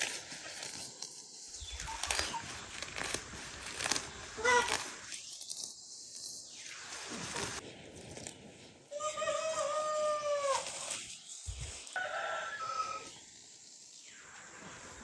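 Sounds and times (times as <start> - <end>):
rooster crowing: 12.0 - 13.2.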